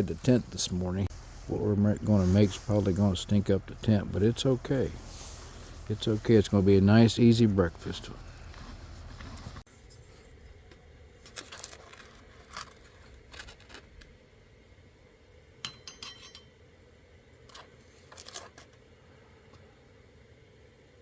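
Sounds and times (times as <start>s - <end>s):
pots and utensils clinking: 15.6s - 16.6s
ringing clink: 15.6s - 16.6s.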